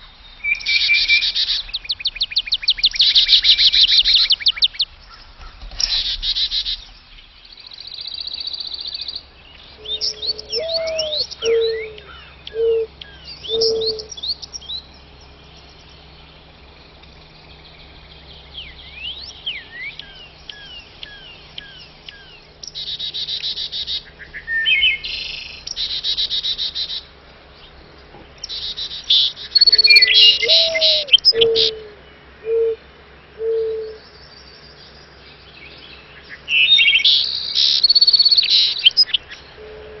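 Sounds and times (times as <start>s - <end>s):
songbirds chirping and trilling: 0.0s - 40.0s
low four-note bird call: 9.7s - 16.4s, 29.6s - 32.8s, 33.4s - 34.1s.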